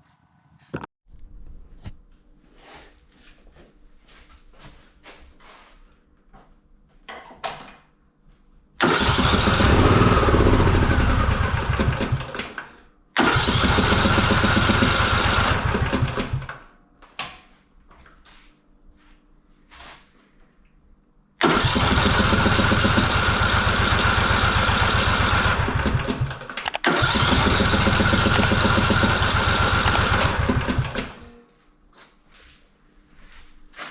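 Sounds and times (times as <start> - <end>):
mower engine being cranked: 8.8 - 11.5, 13.2 - 16.3, 21.5 - 31.2.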